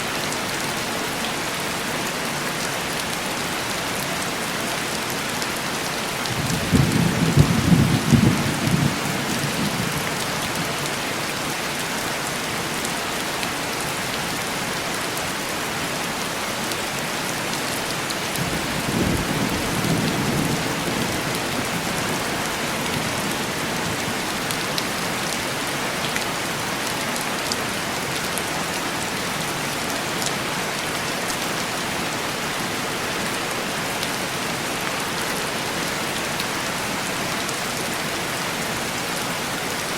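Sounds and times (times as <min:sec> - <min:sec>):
heavy rain on a window: 0:00.1 - 0:39.9.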